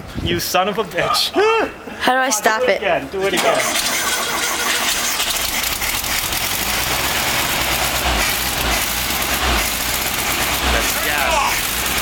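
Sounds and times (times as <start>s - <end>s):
car engine rumbling: 3.4s - 12.0s.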